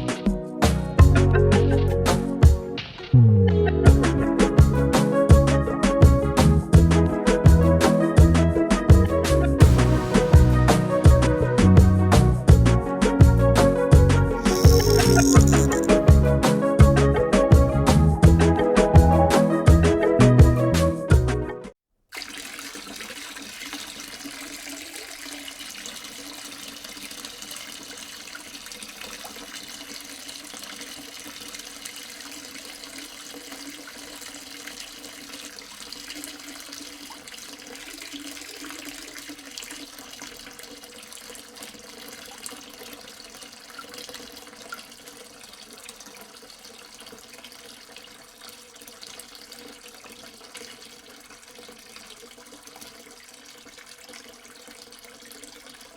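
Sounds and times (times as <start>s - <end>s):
water running and splashing: 9.6s - 10.9s, 14.4s - 16.0s, 22.1s - 55.9s.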